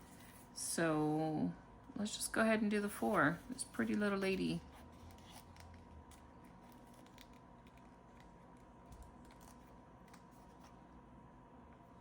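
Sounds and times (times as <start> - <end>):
hands handling paper envelopes: 3.0 - 11.0.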